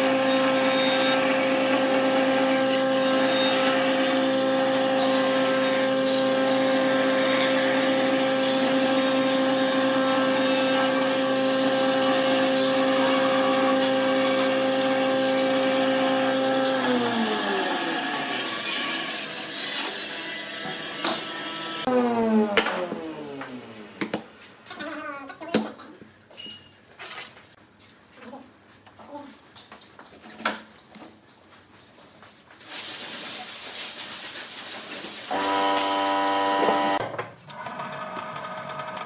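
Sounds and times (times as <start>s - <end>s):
wood lathe motor hum: 0.0s - 23.8s, 35.3s - 39.0s.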